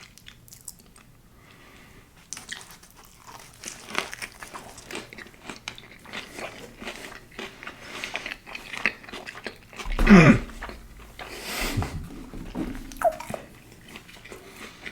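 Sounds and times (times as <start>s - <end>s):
person chewing crunchy food: 2.3s - 9.6s.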